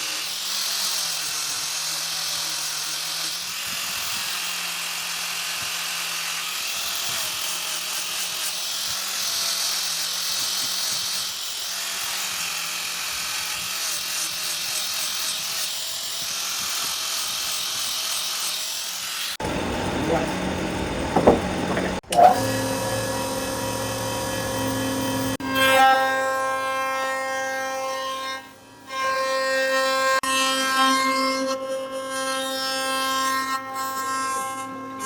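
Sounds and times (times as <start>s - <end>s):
power tool motor whirring: 0.0s - 26.7s.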